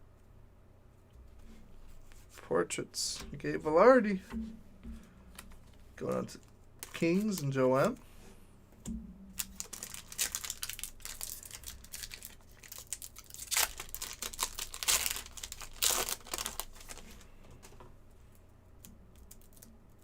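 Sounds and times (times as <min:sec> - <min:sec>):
cards being handled: 0:05.4 - 0:08.0, 0:09.4 - 0:17.3
wrapper crinkling and tearing: 0:09.4 - 0:17.2, 0:19.2 - 0:20.0.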